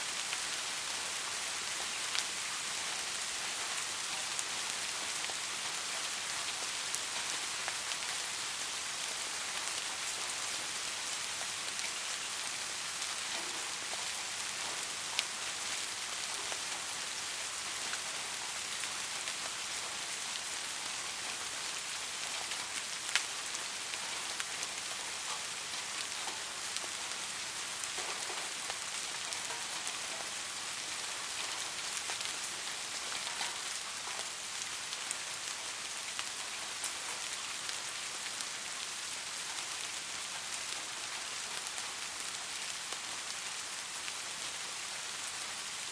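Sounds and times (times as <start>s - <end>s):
steady rain patter: 0.0s - 45.9s.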